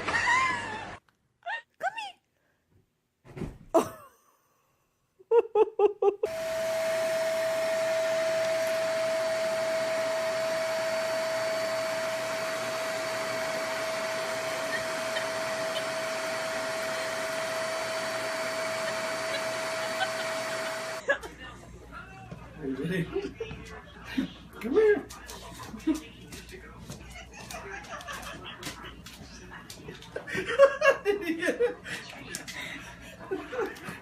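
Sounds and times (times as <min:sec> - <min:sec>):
electric blower rushing hiss: 0:06.3 - 0:21.0.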